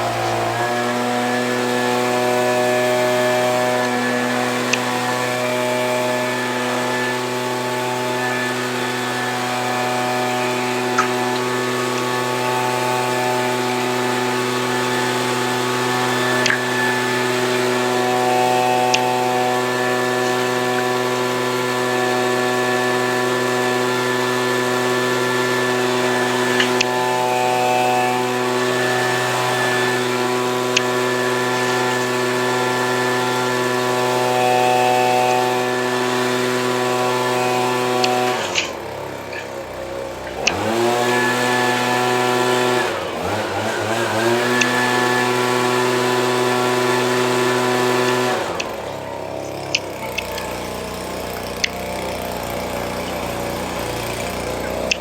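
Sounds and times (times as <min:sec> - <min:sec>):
leaf blower engine running: 0:00.0 - 0:55.0.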